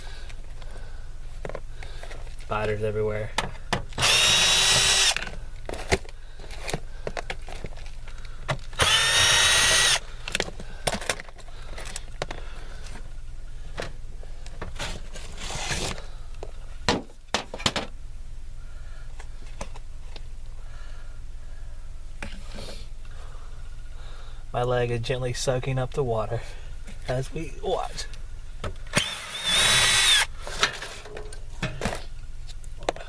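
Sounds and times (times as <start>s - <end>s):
power drill burst: 4.0s - 5.3s, 8.8s - 10.1s, 28.9s - 30.3s
tool handling clicks and knocks: 10.3s - 13.0s, 30.5s - 33.0s.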